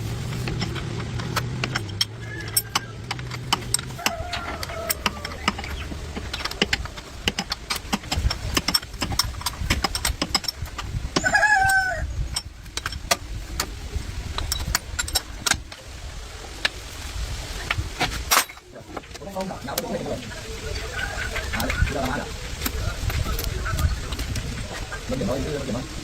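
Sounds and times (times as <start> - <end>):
low rumble: 0.0 - 18.0
sharp clicks and knocks: 0.2 - 15.9.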